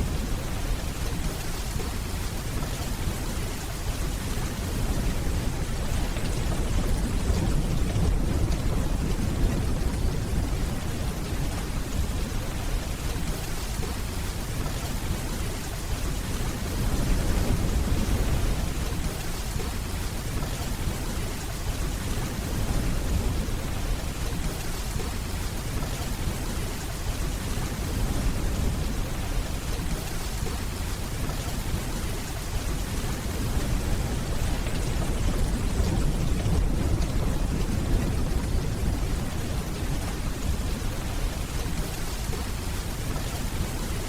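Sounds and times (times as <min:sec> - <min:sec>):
steady rainfall: 0:00.0 - 0:44.0
distant thunder rumble: 0:03.1 - 0:14.0, 0:31.3 - 0:44.0.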